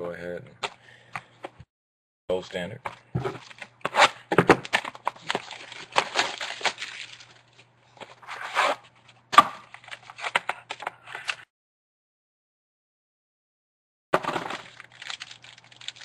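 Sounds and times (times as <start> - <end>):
wrapper crinkling: 4.9 - 7.6, 14.4 - 16.0.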